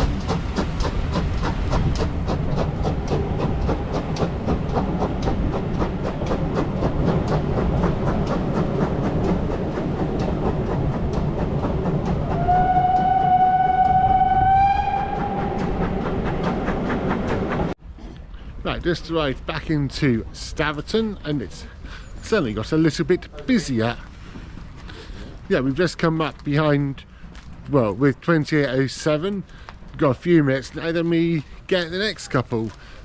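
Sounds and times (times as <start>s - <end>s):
wheels clacking over rail joints: 0.0s - 17.8s, 18.7s - 33.0s
steam locomotive whistle: 12.1s - 17.0s.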